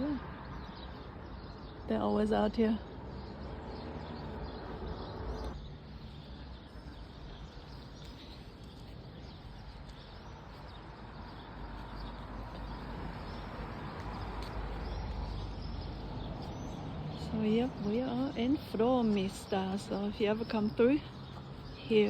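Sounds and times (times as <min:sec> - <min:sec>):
faint small birds chirping: 0:00.0 - 0:22.0.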